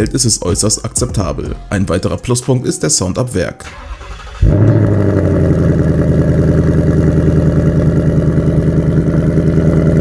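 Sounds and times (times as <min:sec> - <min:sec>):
car engine idling: 0:03.7 - 0:10.0.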